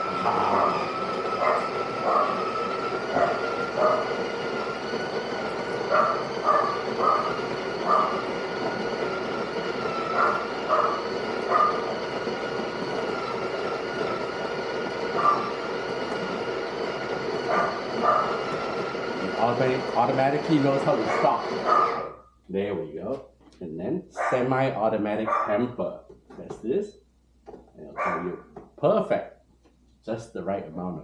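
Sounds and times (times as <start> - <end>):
coffee grinder grinding beans: 0.0 - 22.2.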